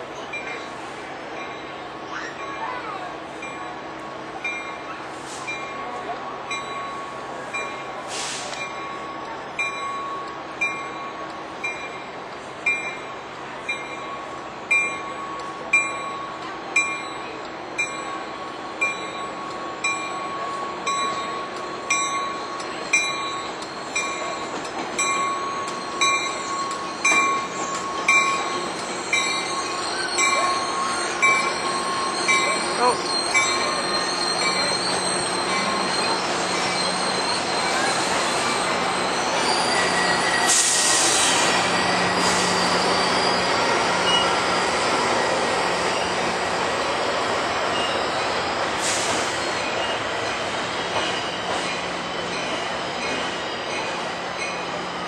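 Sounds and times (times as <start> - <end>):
train moving slowly: 0.0 - 55.0
train bell ringing: 0.2 - 40.6, 41.3 - 55.0
wheels squealing on track: 22.8 - 55.0.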